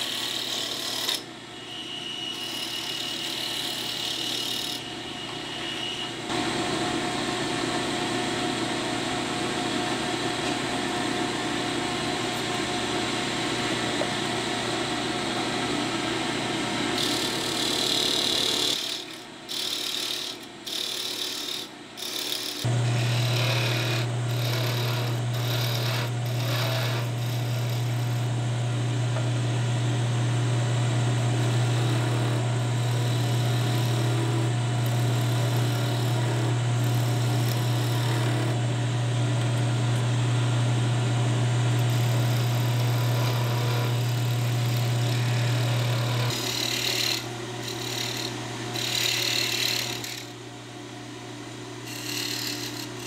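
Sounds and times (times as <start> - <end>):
electric power tool humming: 15.6 - 50.4, 51.8 - 53.0.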